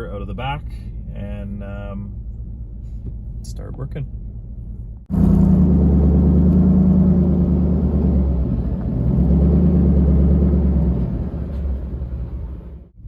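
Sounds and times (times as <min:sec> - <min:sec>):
engine running under load: 0:05.1 - 0:13.0.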